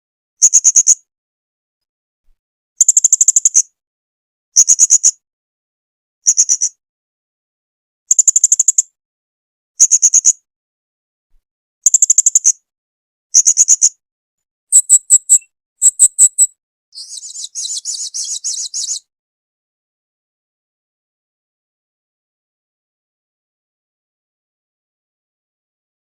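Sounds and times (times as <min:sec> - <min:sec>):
buzzy parrot twittering: 0:14.7 - 0:19.0
parrot chirping: 0:14.7 - 0:19.0.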